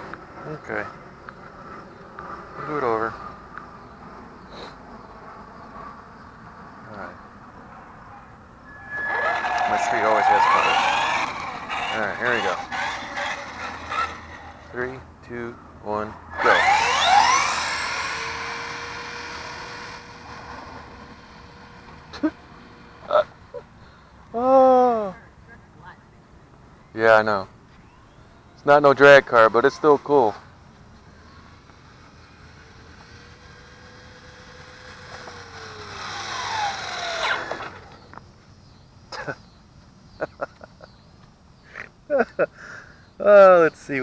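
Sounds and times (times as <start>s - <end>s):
brief short sound: 8.6s - 11.2s
electric toy truck motor: 8.7s - 15.0s, 16.3s - 23.6s, 31.0s - 38.2s.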